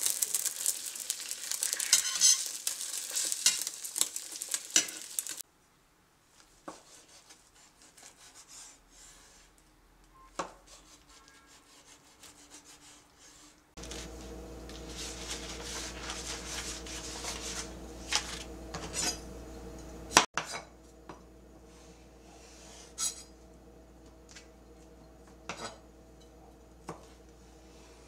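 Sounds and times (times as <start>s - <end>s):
low hum: 13.8s - 20.2s.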